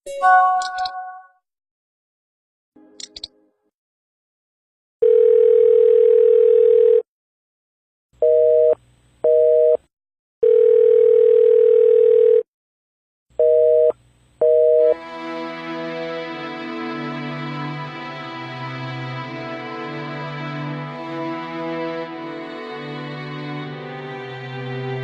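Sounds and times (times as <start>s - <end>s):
music: 2.8s - 3.7s, 15.0s - 25.0s.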